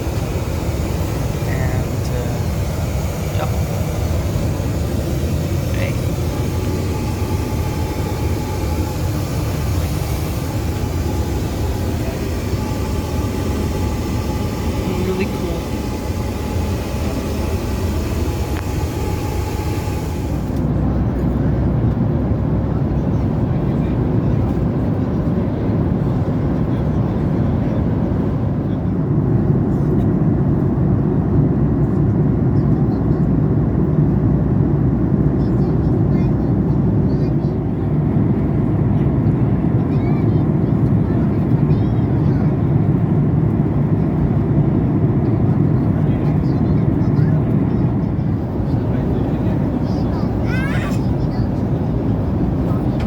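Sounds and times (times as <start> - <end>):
low rumble of airflow and engines: 0.0 - 53.0.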